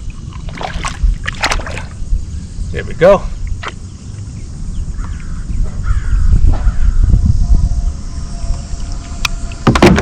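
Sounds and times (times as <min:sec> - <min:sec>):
steady low rumble: 0:00.0 - 0:09.6
harsh crow-like bird calls: 0:04.8 - 0:07.2.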